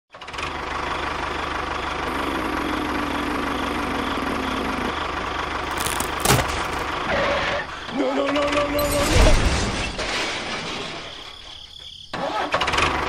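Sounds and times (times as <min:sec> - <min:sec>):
engine idling: 0:00.4 - 0:08.0.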